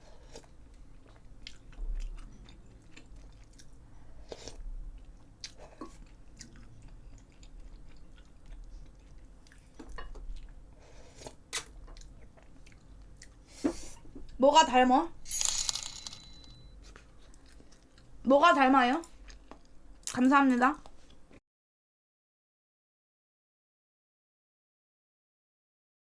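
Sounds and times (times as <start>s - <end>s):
person chewing food: 0.1s - 14.3s, 16.8s - 18.2s, 19.1s - 20.1s.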